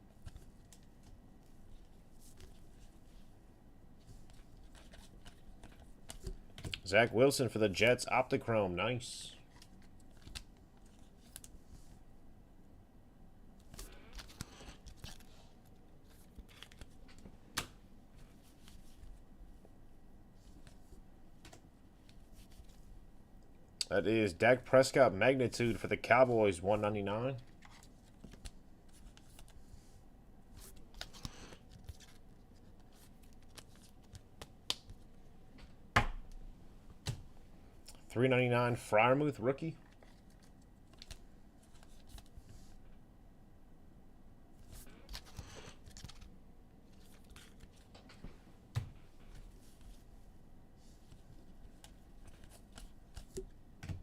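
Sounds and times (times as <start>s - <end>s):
cards rustling: 4.0s - 6.8s, 9.4s - 11.7s, 13.6s - 19.2s, 24.8s - 29.9s, 30.6s - 35.1s, 39.8s - 42.8s, 44.6s - 48.2s, 50.9s - 54.0s.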